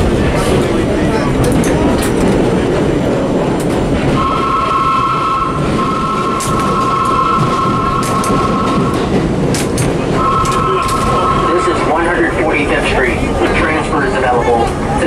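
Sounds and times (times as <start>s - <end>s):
subway car rumble: 0.0s - 15.0s
high two-pitch whine: 4.2s - 9.1s, 10.1s - 12.2s.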